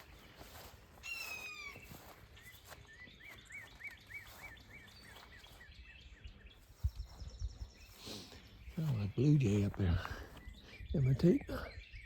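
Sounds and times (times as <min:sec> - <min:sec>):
blue jay harsh call: 0:01.0 - 0:01.8.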